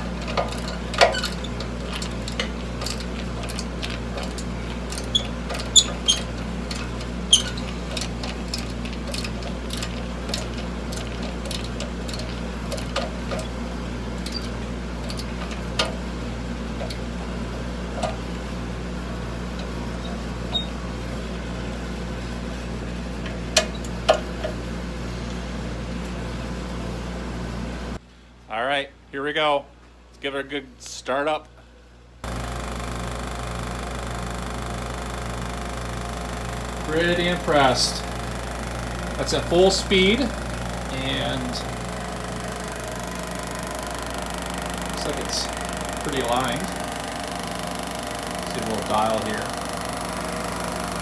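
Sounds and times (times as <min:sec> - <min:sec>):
steady low hum: 0:31.6 - 0:51.0.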